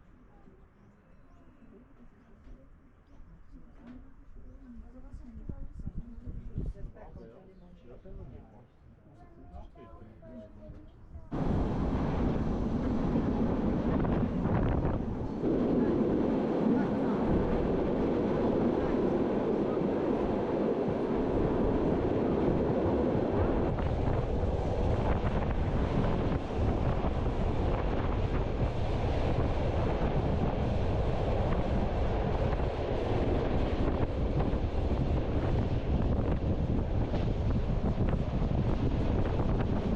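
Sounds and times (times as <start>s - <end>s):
wind buffeting microphone: 4.4s - 7.2s, 10.6s - 39.9s
train running on rails: 11.3s - 39.9s.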